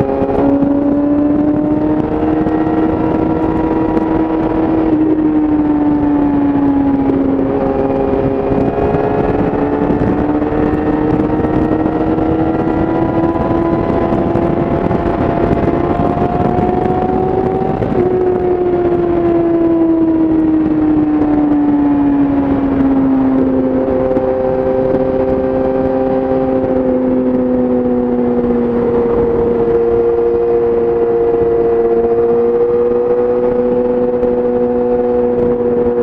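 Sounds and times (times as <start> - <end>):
motorcycle engine revving: 0.0 - 36.0
wind rush: 0.0 - 36.0.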